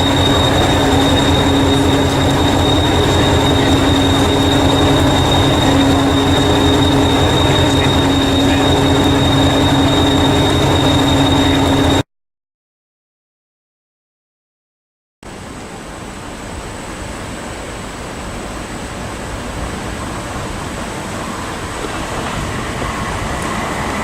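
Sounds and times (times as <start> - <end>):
electric train hum and rumble: 0.0 - 12.0, 15.5 - 24.0
high-pitched whine: 0.0 - 12.0.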